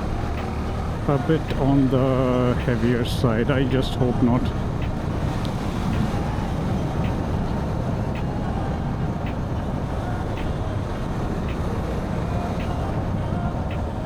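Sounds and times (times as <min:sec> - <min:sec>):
motorcycle engine rumble: 0:00.0 - 0:14.0
wind noise: 0:00.0 - 0:14.0.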